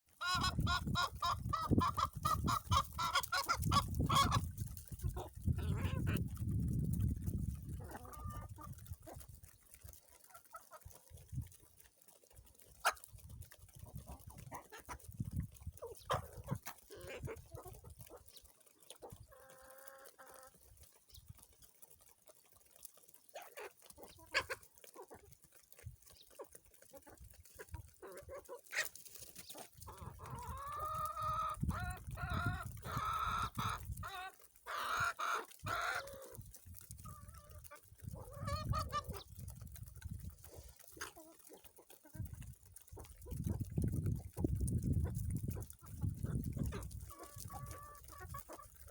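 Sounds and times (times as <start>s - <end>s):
chickens clucking and calling: 0.1s - 48.9s.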